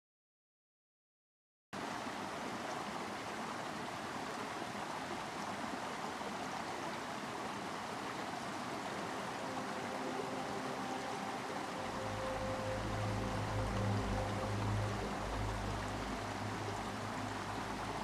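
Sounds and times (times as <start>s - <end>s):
outdoor ambience rushing noise: 1.8s - 18.0s.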